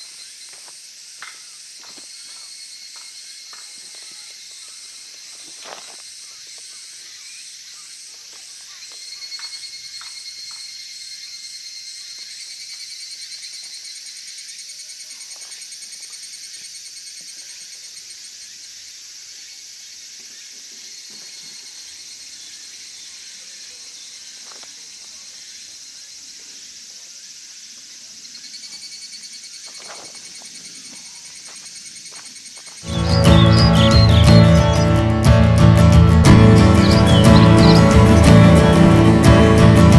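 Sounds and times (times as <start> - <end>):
insects chirping: 18.4 - 39.9.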